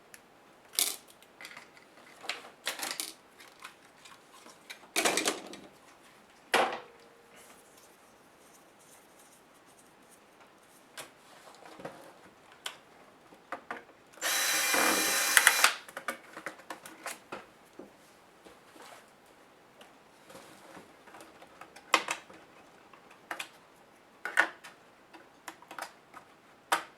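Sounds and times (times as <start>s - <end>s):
power screwdriver whirring: 14.2s - 15.8s.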